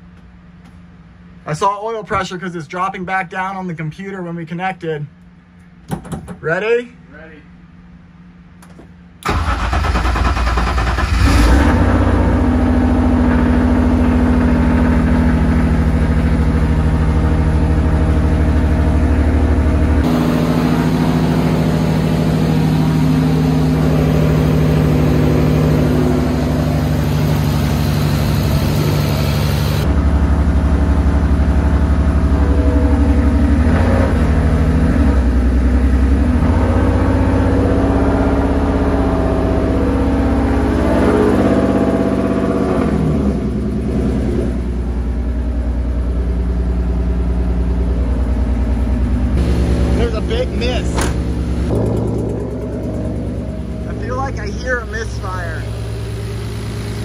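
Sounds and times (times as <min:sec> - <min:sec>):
inline-six engine idling with misfire: 0:13.3 - 0:33.7, 0:44.7 - 0:57.0.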